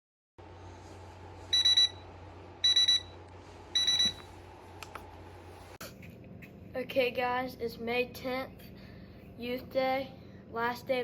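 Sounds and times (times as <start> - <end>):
steady low hum: 0.4 - 11.0
rapid high-pitched alarm beeps: 1.5 - 2.0, 2.6 - 3.2, 3.8 - 4.2.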